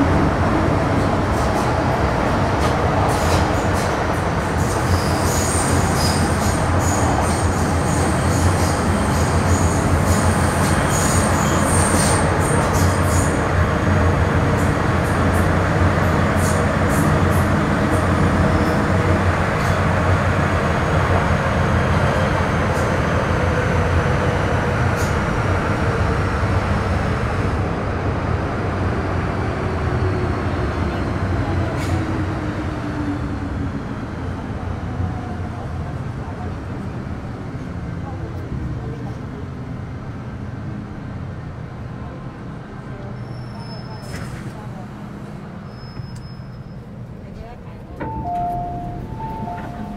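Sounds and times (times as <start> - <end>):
train wheels and traction rumble: 0.0 - 49.9
high wheel squeal: 4.7 - 13.3, 45.6 - 46.9.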